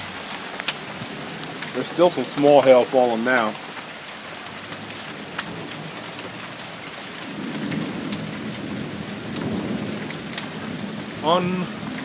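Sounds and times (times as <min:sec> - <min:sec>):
hail pellets ticking: 0:00.0 - 0:12.0
steady rain: 0:00.0 - 0:12.0
low roll of thunder: 0:07.2 - 0:12.0.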